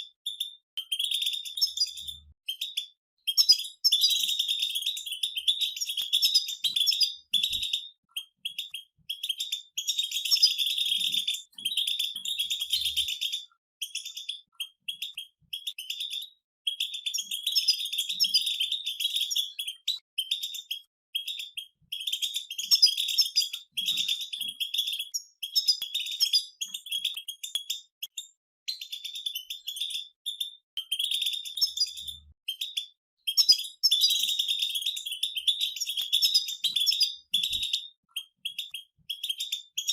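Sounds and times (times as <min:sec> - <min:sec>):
goldfinches twittering: 0:03.3 - 0:27.5.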